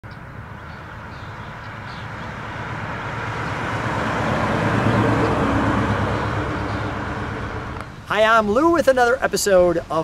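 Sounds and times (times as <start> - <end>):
car engine approaching: 0.4 - 8.2.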